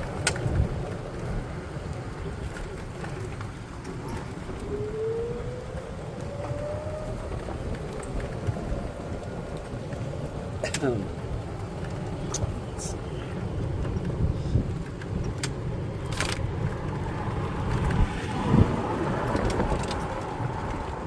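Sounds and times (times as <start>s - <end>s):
golf cart rumbling: 0.0s - 21.0s
rising motor whine: 4.3s - 8.4s.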